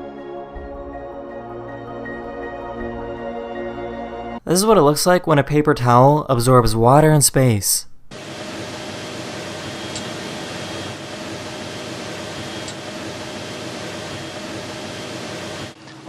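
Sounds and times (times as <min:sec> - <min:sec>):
ventilation fans humming: 0:08.0 - 0:16.0.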